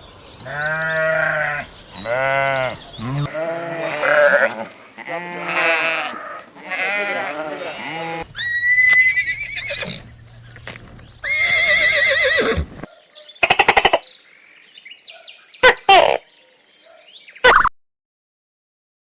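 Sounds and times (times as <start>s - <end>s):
horse whinnying: 0.6s - 10.1s, 11.2s - 12.9s.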